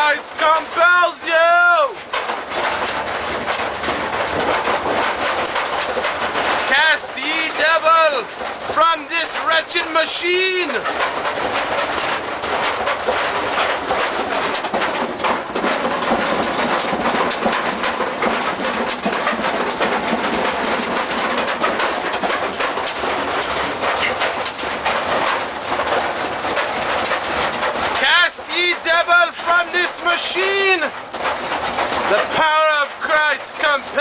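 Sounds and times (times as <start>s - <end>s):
washing machine rattling churn: 0.0s - 34.0s.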